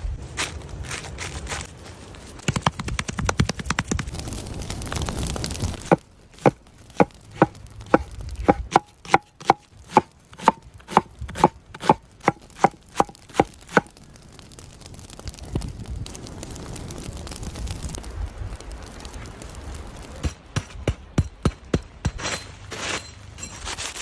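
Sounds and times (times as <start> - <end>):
knife chopping on cutting board: 8.4 - 12.0.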